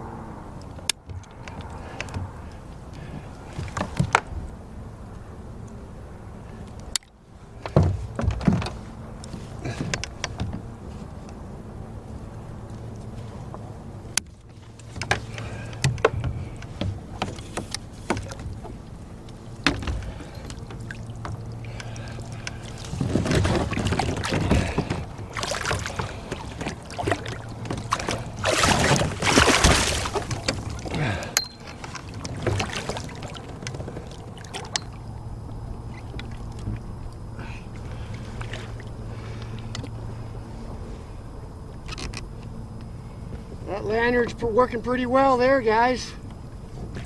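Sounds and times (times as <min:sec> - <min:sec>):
steady low hum: 0:00.0 - 0:47.0
gear knocking against boat: 0:00.8 - 0:04.6, 0:06.8 - 0:40.0
fish splashing in water: 0:14.4 - 0:39.9.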